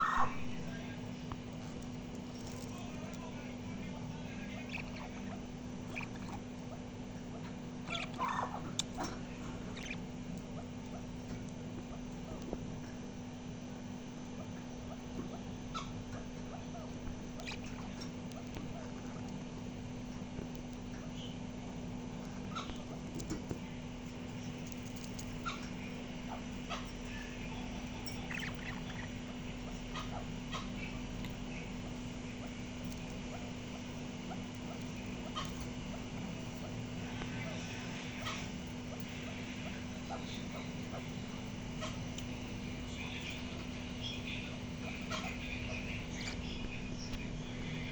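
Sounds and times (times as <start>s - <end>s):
parrot chirping and chattering: 0.0s - 47.9s
steady low hum: 0.0s - 47.9s
parrot chirping and squeaking: 4.5s - 11.1s, 15.7s - 19.3s, 27.9s - 31.0s.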